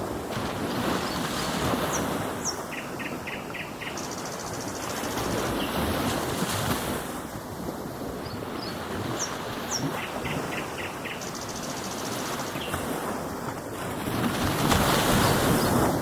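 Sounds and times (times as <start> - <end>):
ocean surf washing: 0.0 - 16.0.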